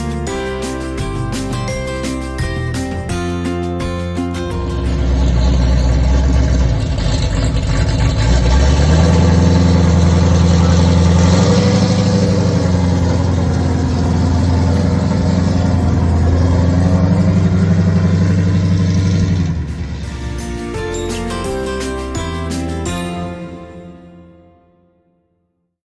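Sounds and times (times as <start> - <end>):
car engine revving: 4.4 - 21.2.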